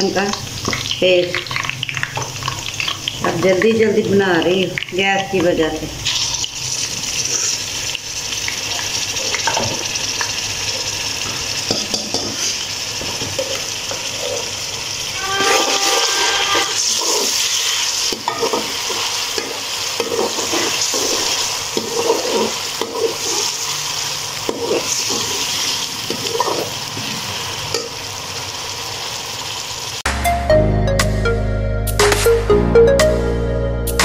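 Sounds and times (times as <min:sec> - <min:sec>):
onions sizzling in hot oil: 0:00.0 - 0:30.1
spoon scraping wok: 0:13.3 - 0:27.9
electronic music: 0:30.1 - 0:34.0.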